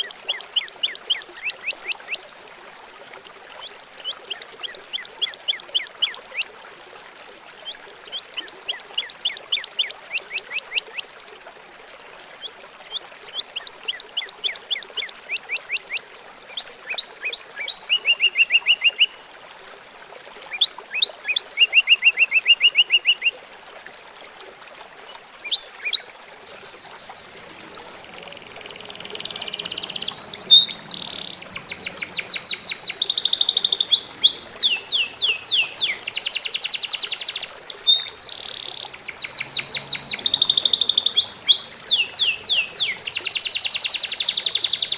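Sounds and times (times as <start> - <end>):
trickling water: 0.0 - 44.9
songbird trilling: 27.0 - 44.9.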